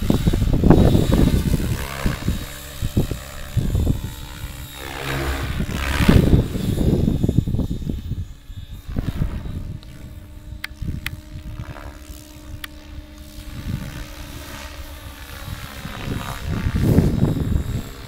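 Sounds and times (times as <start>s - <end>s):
gusty buffeting: 0.0s - 18.0s
rc helicopter motor whine: 0.0s - 18.0s
sharp clicks: 10.6s - 11.2s.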